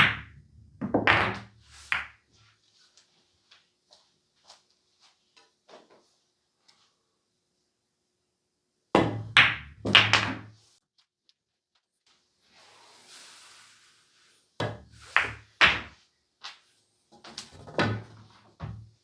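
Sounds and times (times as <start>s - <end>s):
pool balls clacking: 0.0s - 2.1s, 9.0s - 10.5s, 14.6s - 15.9s.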